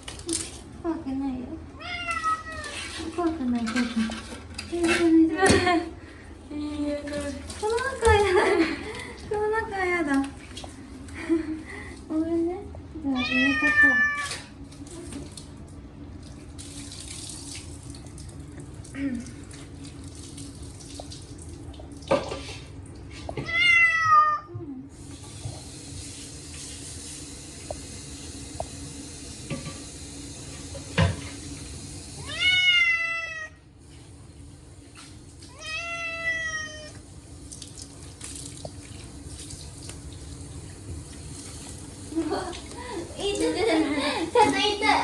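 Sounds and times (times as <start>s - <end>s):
water running from a tap: 0.0s - 24.0s, 24.9s - 45.0s
cat meowing loudly: 1.8s - 2.8s, 13.2s - 14.4s, 23.4s - 24.5s, 32.2s - 33.6s, 35.5s - 37.0s.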